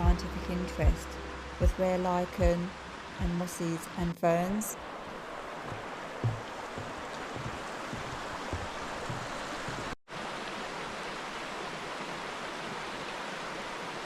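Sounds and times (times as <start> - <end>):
soft low thumps: 0.0 - 3.4, 5.6 - 10.0
stream rushing over rocks: 4.8 - 14.0.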